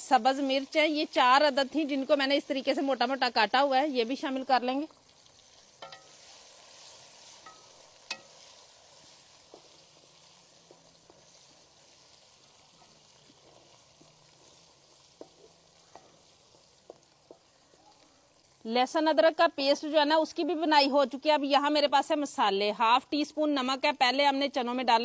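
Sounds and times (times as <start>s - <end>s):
food sizzling in oil: 0.0s - 24.4s
spoon clicking against pan: 5.8s - 6.1s, 7.4s - 8.3s.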